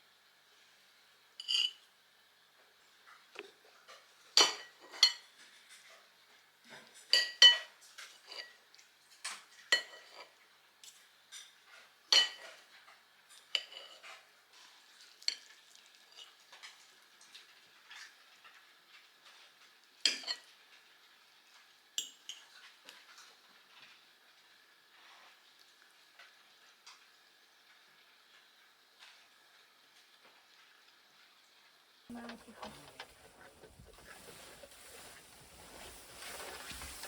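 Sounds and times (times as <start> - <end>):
crockery and cutlery clinking: 6.9 - 8.6, 32.1 - 37.0.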